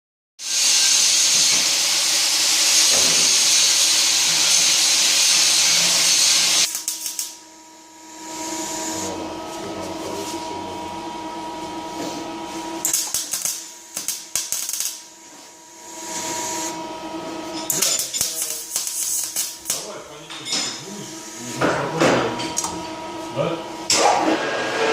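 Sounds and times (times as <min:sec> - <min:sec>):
welding hiss: 0:00.4 - 0:07.4, 0:12.8 - 0:15.2, 0:17.6 - 0:20.0
crackling bursts: 0:06.6 - 0:07.4, 0:12.8 - 0:15.1
machine hum: 0:06.6 - 0:17.8, 0:18.4 - 0:24.9.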